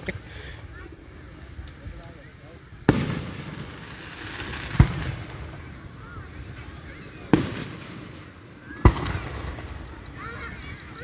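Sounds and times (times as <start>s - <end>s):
fireworks booming: 0.0s - 11.0s.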